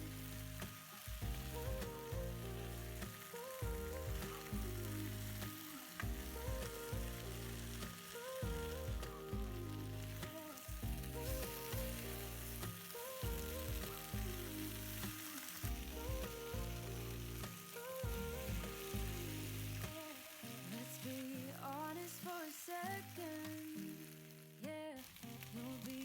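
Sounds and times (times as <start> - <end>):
background music with bass: 0.0 - 19.9
food sizzling in a pan: 0.0 - 26.0.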